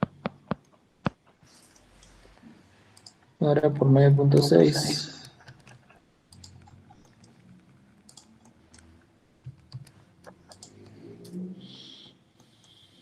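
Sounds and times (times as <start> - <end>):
clicks of keys pressed: 8.1 - 8.9, 9.5 - 11.4.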